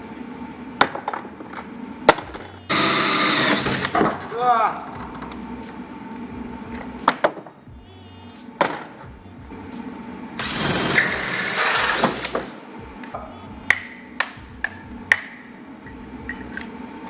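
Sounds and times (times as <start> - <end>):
faint background music: 0.0 - 17.0
electric drill running: 2.7 - 4.1, 10.4 - 12.5.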